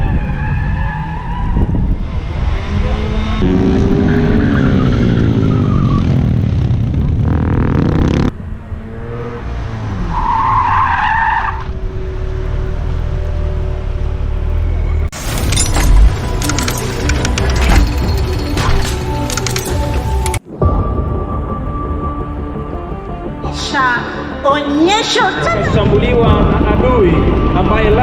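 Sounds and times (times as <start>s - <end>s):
motorcycle engines revving: 0.0s - 10.9s.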